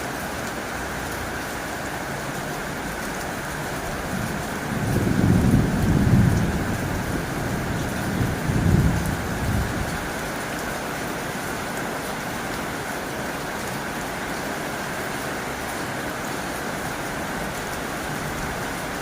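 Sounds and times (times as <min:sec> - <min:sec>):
heavy rain on a tin roof: 0:00.0 - 0:19.0
thunder rumbling: 0:03.9 - 0:10.1.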